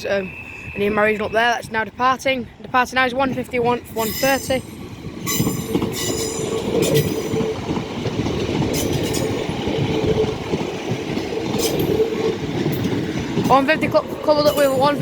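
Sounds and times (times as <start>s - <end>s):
diesel train engines droning: 0.0s - 15.0s
wheels clicking: 5.2s - 15.0s.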